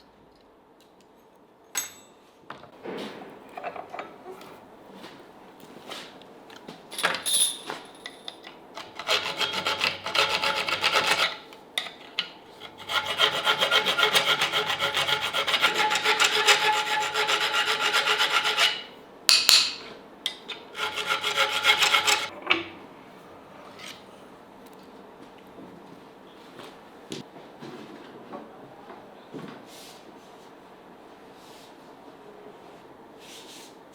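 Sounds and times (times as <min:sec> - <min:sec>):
hand file rasping: 0:08.8 - 0:11.5, 0:12.6 - 0:19.0, 0:20.8 - 0:22.3.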